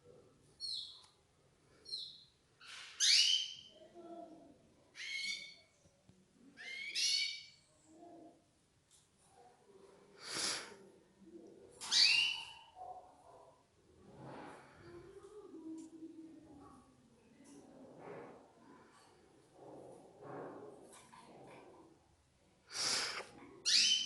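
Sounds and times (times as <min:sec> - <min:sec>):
canaries calling: 0:11.8 - 0:12.7, 0:23.6 - 0:24.0.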